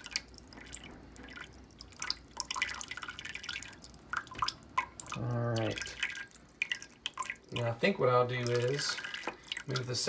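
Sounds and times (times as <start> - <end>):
water dripping into a bucket: 0.0 - 10.0.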